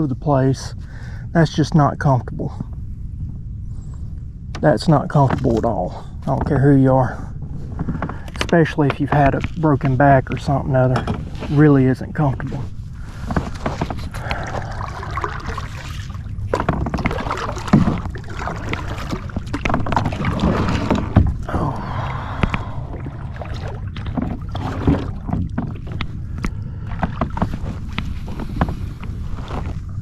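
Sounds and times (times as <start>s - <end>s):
paddle strokes in water: 12.4s - 30.0s
paddle knocking against kayak: 13.2s - 21.6s, 22.3s - 29.8s.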